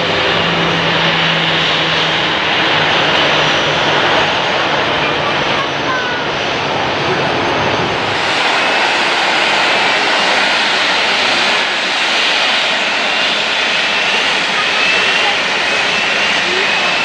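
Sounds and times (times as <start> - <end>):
jet engines rushing: 0.0 - 17.0
faint rising whine: 6.6 - 16.6.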